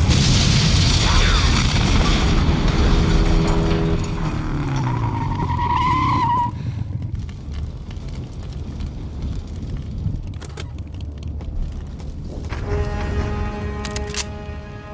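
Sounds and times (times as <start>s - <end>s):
low vehicle rumble: 2.0s - 13.8s.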